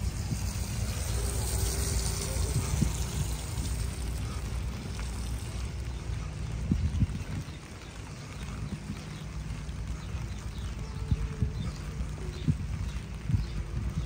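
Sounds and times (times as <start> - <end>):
low rumble: 0.0 - 14.0
rain hissing: 0.0 - 14.0.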